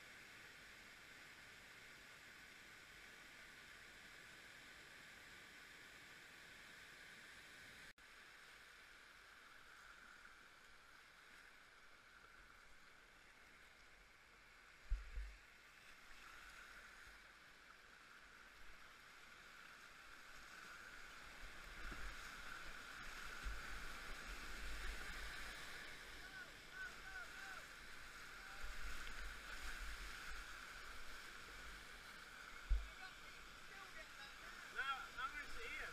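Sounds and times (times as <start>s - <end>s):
river water rushing: 0.8s - 35.9s.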